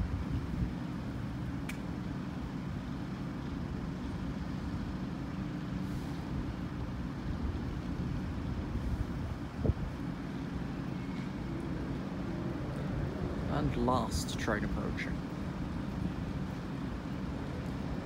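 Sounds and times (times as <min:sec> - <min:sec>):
diesel train engine rumble: 0:00.0 - 0:18.0
faint click: 0:01.6 - 0:01.8.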